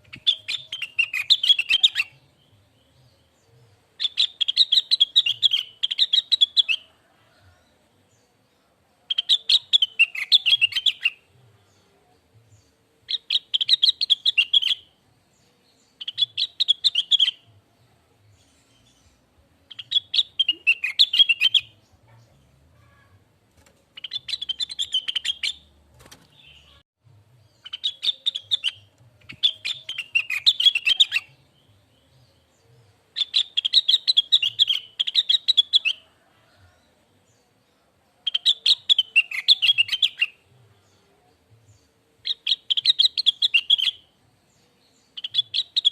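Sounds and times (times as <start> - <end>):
bird singing high chattering notes: 24.0 - 25.7, 27.6 - 31.4.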